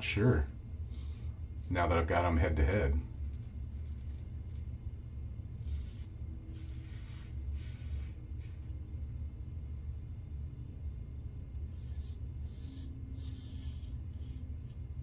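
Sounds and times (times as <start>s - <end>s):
steady low hum: 0.0s - 15.0s
razor scraping through lather: 0.8s - 2.3s, 5.6s - 8.8s, 11.6s - 14.9s.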